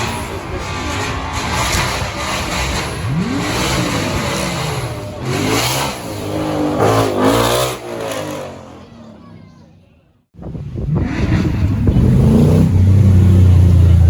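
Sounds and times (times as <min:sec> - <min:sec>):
sports car engine revving: 0:01.4 - 0:09.0, 0:10.4 - 0:14.0.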